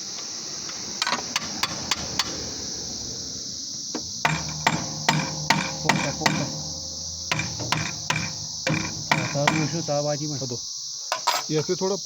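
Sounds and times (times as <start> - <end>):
high-pitched hiss: 0.0 - 12.0
hammer tapping on metal: 1.0 - 2.5, 4.0 - 11.5.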